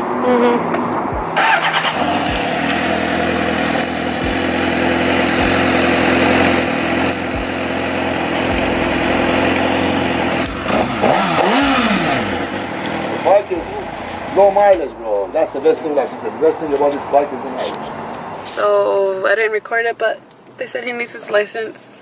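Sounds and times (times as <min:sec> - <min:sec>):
motorcycle engine idling: 0:00.2 - 0:17.4.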